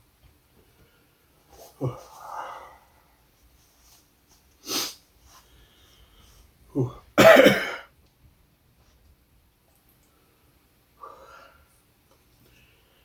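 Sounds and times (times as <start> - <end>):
man coughing: 6.8 - 7.9.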